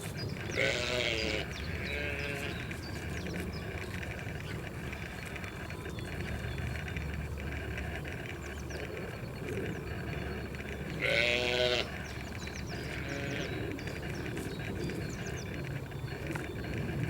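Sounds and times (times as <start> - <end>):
outdoor background noise: 0.0 - 17.0
animal bleating: 0.4 - 2.6, 10.9 - 12.0, 12.8 - 13.6.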